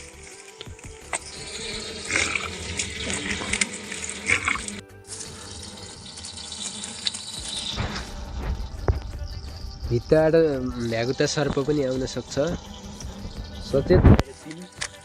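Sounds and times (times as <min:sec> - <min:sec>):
spring water running and splashing: 0:00.0 - 0:08.1.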